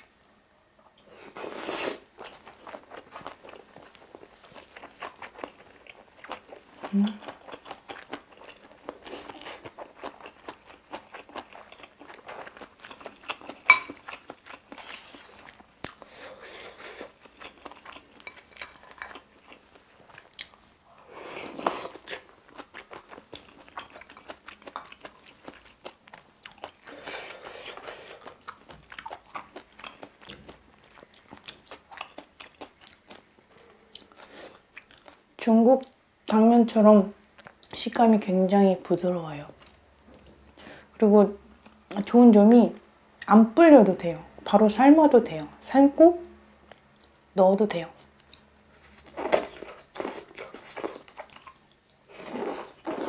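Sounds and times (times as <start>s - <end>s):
person chewing wetly: 0.8s - 35.2s, 48.2s - 53.0s.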